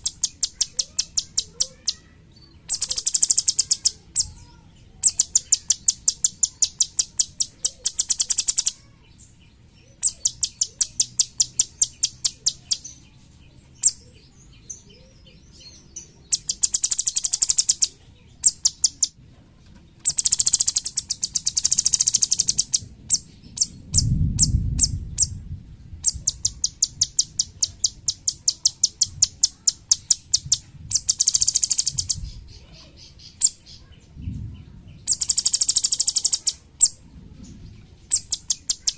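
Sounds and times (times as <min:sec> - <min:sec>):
songbird singing sharp high notes: 0:00.0 - 0:13.0, 0:15.5 - 0:19.2, 0:20.1 - 0:25.4, 0:26.0 - 0:32.5, 0:35.0 - 0:37.0.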